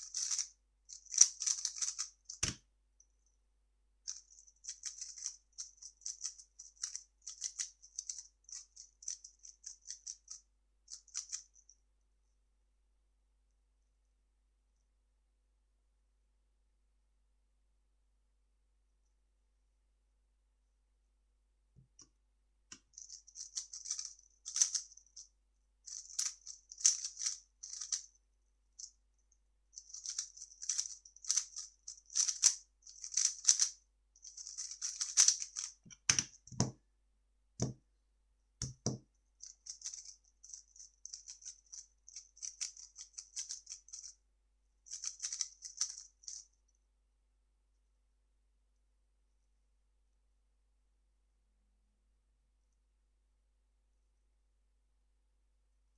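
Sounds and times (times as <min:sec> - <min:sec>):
puzzle cube clicking and rattling: 0:00.0 - 0:02.6, 0:04.1 - 0:11.6, 0:23.0 - 0:25.2, 0:25.9 - 0:28.1, 0:29.8 - 0:36.7, 0:38.6 - 0:44.2, 0:44.9 - 0:46.4.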